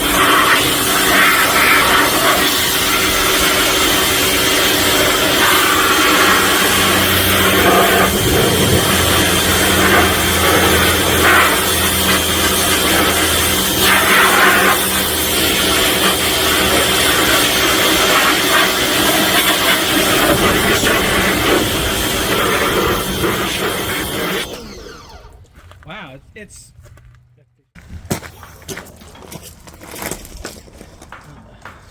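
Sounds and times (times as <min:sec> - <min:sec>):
pressure washer water jet hissing: 0:00.0 - 0:25.2
pump motor low hum: 0:00.0 - 0:25.6.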